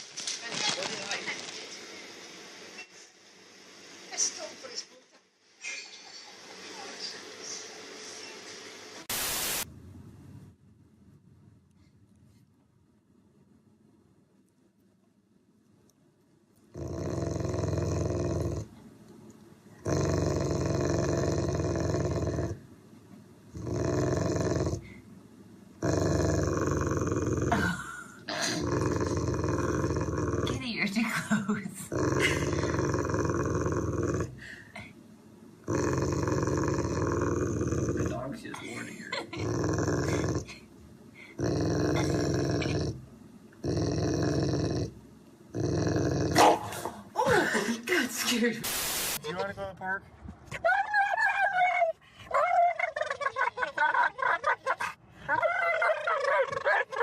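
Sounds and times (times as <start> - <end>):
dog growling: 16.7 - 18.8, 19.8 - 22.7, 23.5 - 25.0, 25.8 - 30.8, 31.8 - 34.6, 35.6 - 38.4, 39.1 - 47.0, 54.2 - 57.0.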